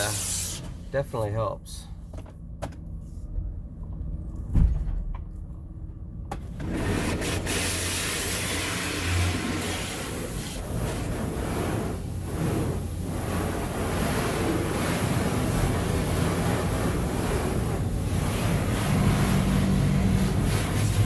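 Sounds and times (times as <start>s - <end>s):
high-pressure water spray hissing: 0.0s - 0.6s, 6.8s - 21.0s
low hum inside van: 0.0s - 21.0s
thump: 4.5s - 5.2s.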